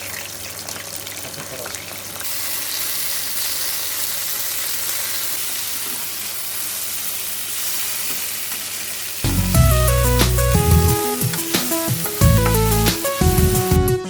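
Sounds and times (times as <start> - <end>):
food sizzling in hot oil: 0.0 - 13.7
background music with a beat: 9.3 - 14.0.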